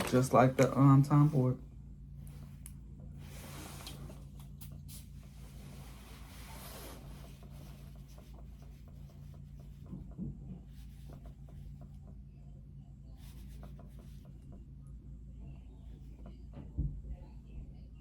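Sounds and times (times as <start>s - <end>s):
steady low hum: 0.0s - 18.0s
rubbing and tapping on bottle: 3.8s - 12.2s, 13.1s - 14.7s.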